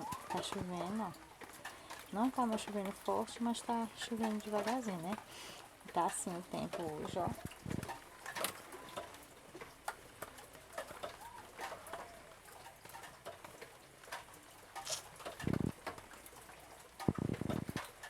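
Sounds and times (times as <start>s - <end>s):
drips ticking: 0.0s - 18.0s
light rain falling: 0.0s - 18.0s
bird cooing: 10.9s - 12.4s.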